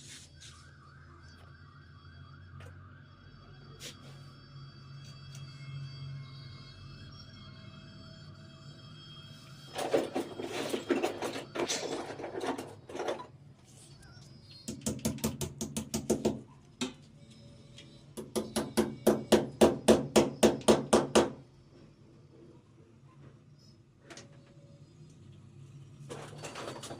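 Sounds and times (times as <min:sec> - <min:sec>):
hammer blows: 0:18.1 - 0:21.4.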